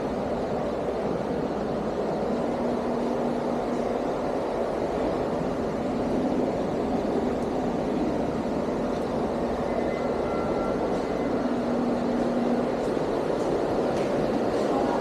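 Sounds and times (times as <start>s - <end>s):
faint held hum: 0.0s - 15.0s
steady rushing background noise: 0.0s - 15.0s
thin high tone: 9.6s - 11.6s.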